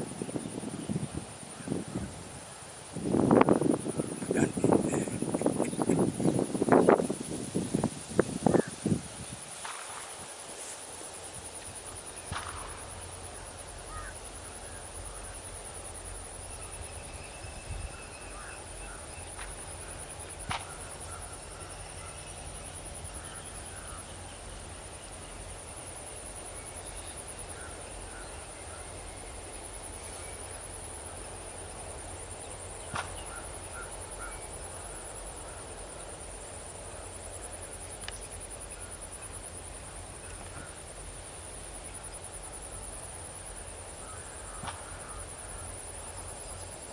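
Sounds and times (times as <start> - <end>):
short bird calls: 4.1 - 6.4.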